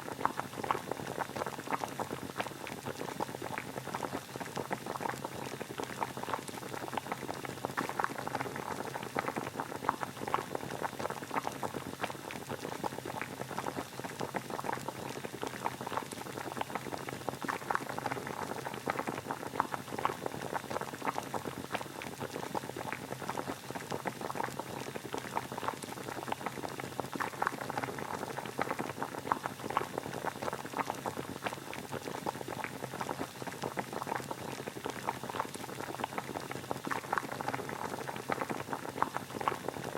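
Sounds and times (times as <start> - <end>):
water boiling: 0.0 - 39.9.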